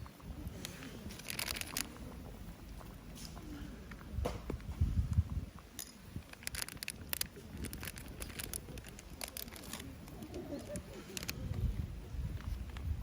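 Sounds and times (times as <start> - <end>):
sharp clicks and crackles: 0.0 - 2.0, 4.6 - 11.6
dove cooing: 7.3 - 12.2.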